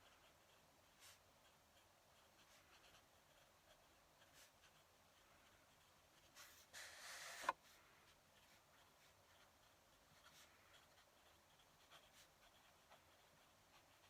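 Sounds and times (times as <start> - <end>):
pen nib scratching on paper: 0.0 - 14.0.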